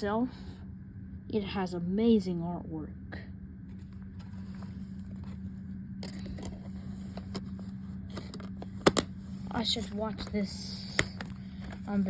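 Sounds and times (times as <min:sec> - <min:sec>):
low background hum: 0:00.0 - 0:12.0
plastic case clicks and taps: 0:08.2 - 0:09.1.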